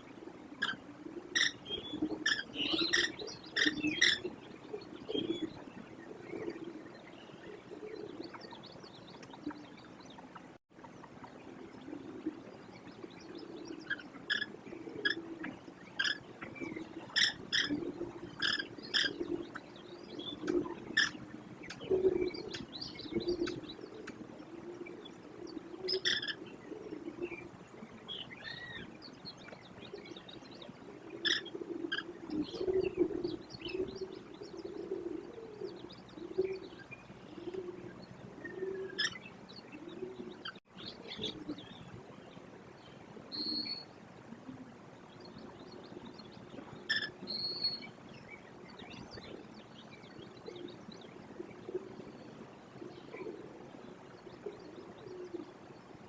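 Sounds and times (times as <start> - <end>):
low repeated bird notes: 0.0 - 56.0
birds chirping and whistling: 1.4 - 5.6.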